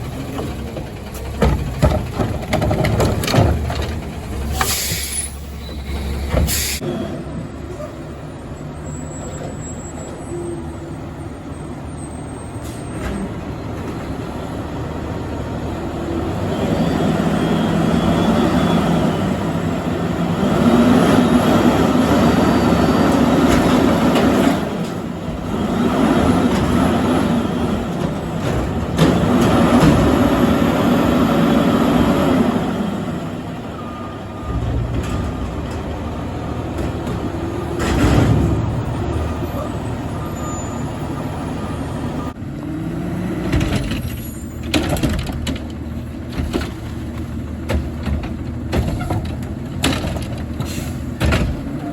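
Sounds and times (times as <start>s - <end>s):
garbage truck running: 0.0s - 51.9s.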